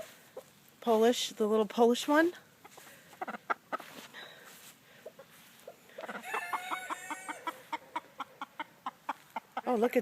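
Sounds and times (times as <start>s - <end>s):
soft chicken clucks: 0.0s - 0.6s, 2.4s - 4.1s, 4.9s - 10.0s
rooster crowing: 6.1s - 7.6s.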